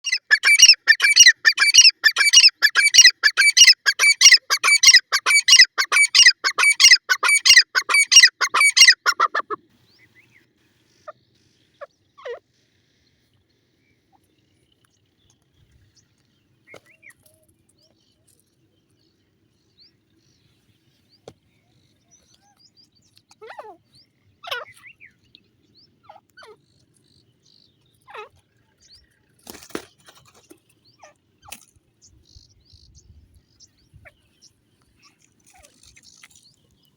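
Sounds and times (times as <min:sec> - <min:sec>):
francolin calling: 0:00.0 - 0:09.6.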